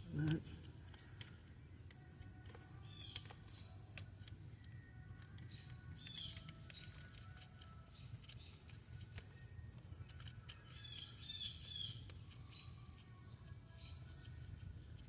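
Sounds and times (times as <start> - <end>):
faint bird chirps: 4.5 - 7.1, 10.6 - 14.5.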